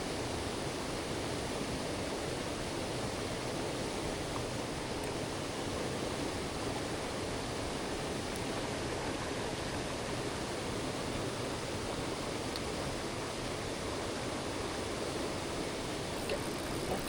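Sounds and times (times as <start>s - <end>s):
stream rushing: 0.0s - 17.0s.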